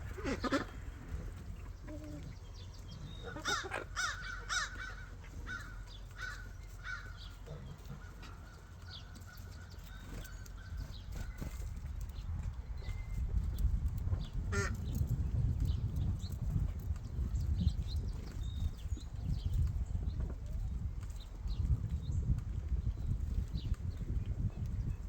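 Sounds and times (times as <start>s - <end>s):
birds calling: 0.0s - 13.2s, 14.2s - 16.2s.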